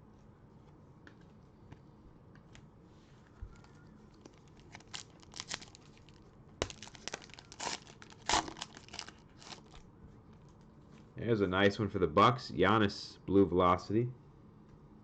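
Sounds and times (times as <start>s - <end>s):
cellophane wrapper crinkling: 3.6s - 9.8s.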